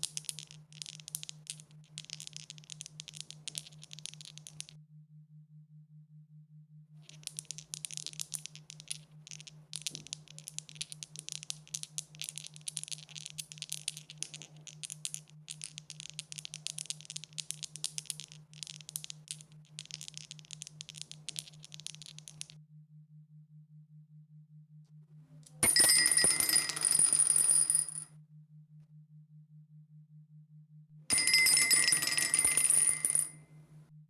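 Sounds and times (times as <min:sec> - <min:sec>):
dice rattling: 0:00.0 - 0:04.7, 0:07.1 - 0:22.5, 0:25.6 - 0:28.0, 0:31.1 - 0:33.4.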